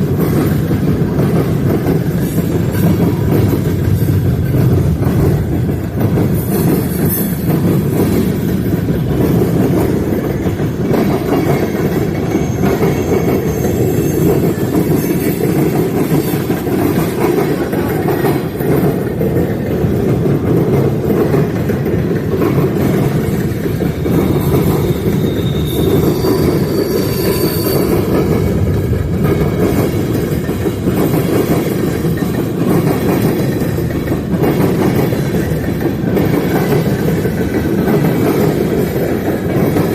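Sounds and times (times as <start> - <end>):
train cars rumbling past: 0.0 - 39.9
train wheels squealing: 6.4 - 18.3, 22.5 - 32.4.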